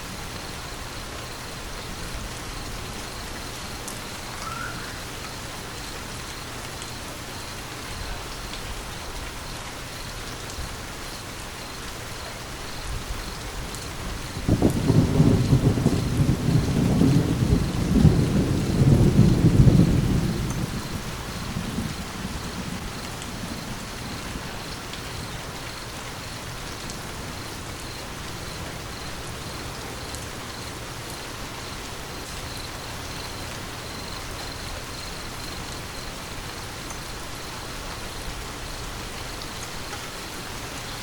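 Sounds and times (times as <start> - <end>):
steady rain: 0.0 - 41.0
thunder rumbling: 13.9 - 30.1.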